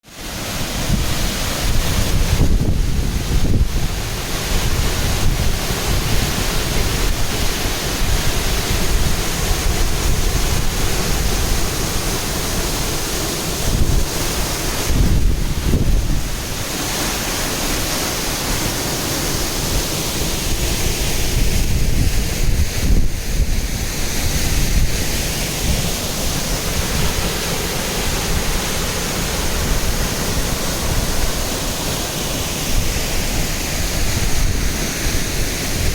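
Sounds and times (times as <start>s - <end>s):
waterfall rushing: 0.0s - 35.9s
wind buffeting microphone: 0.8s - 16.6s, 20.5s - 31.4s.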